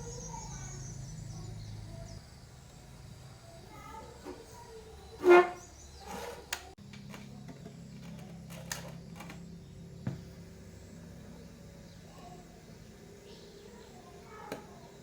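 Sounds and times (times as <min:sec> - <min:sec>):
low electrical hum: 0:00.0 - 0:15.0
loudspeaker honk-like tone: 0:05.2 - 0:05.6.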